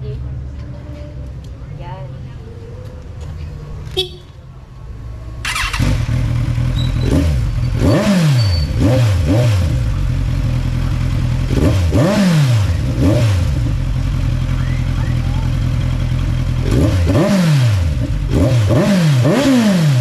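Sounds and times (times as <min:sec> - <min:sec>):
motorcycle engine revving: 0:05.4 - 0:20.0.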